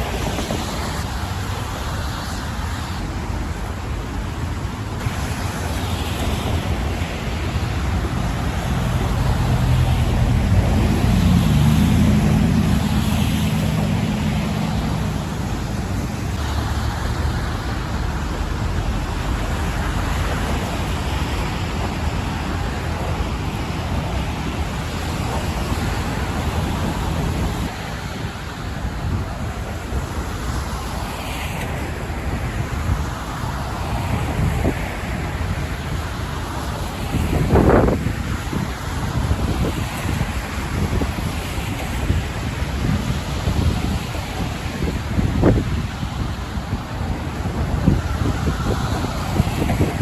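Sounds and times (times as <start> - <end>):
city traffic rushing: 0.0 - 50.0
vehicle engine hum: 5.0 - 27.9.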